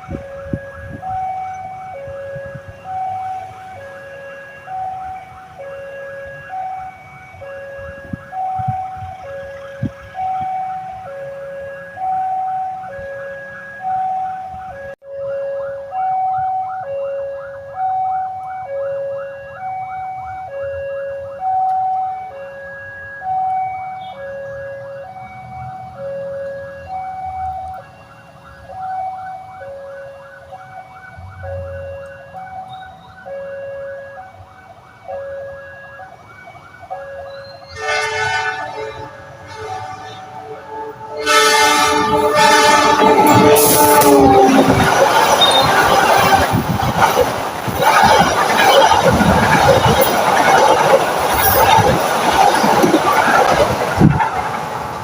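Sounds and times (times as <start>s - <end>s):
locomotive horn: 0.0s - 19.6s, 22.2s - 28.4s, 36.9s - 54.4s
level crossing two-tone alarm: 0.0s - 54.2s.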